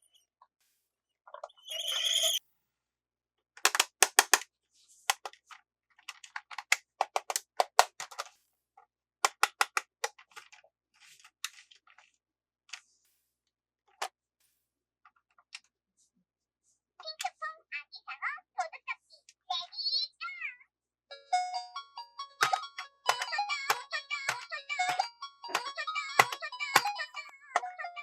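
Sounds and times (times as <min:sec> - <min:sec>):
plastic clicks and snips: 0:03.6 - 0:04.5, 0:05.1 - 0:08.4, 0:09.2 - 0:10.6, 0:22.4 - 0:26.9.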